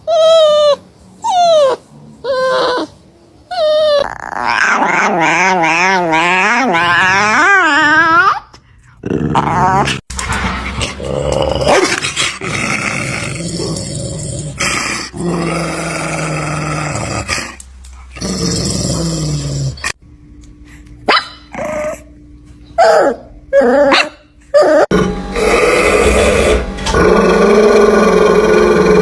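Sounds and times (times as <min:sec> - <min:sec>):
dog growling: 0:00.1 - 0:10.0, 0:10.7 - 0:20.0, 0:23.1 - 0:29.0
dog barking: 0:21.1 - 0:21.5.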